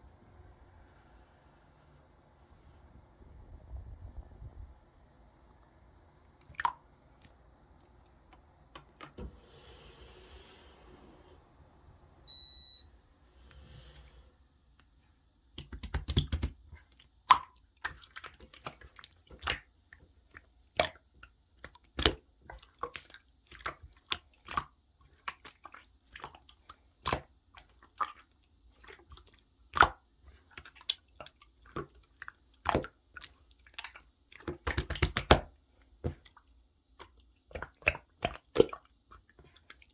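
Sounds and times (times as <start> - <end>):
brief high beep: 12.3 - 12.9
slime wet clicks and pops: 15.6 - 16.6, 19.4 - 19.7, 29.7 - 30.0, 33.8 - 35.5.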